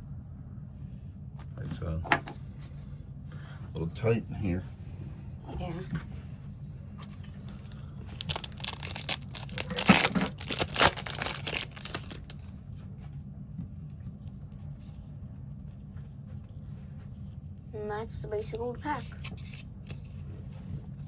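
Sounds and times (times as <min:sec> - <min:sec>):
steady low hum: 0:00.0 - 0:21.0
foil wrapper tearing and crinkling: 0:07.4 - 0:12.5.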